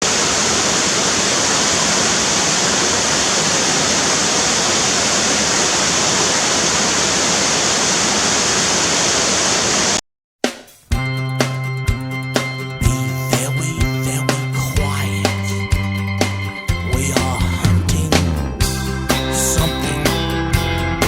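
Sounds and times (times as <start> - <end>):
water rushing: 0.0 - 10.0.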